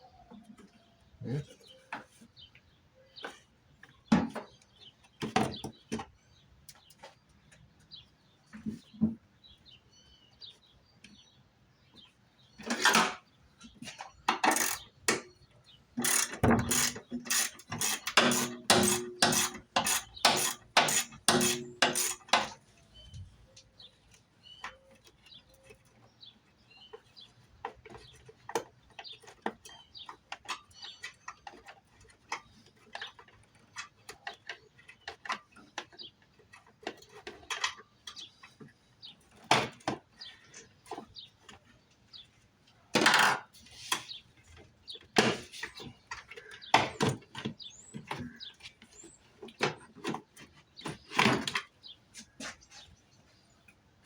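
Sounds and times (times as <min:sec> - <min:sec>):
socket ratchet clicking: 0:16.0 - 0:22.3.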